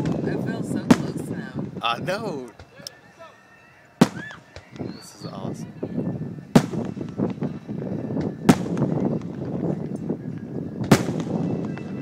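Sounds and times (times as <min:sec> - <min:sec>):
firework pops and crackle: 0:00.0 - 0:01.3, 0:04.0 - 0:04.9, 0:06.6 - 0:07.5, 0:08.1 - 0:10.0, 0:10.8 - 0:12.0
firework booms: 0:00.0 - 0:01.8, 0:04.0 - 0:04.8, 0:06.6 - 0:09.8, 0:10.8 - 0:12.0.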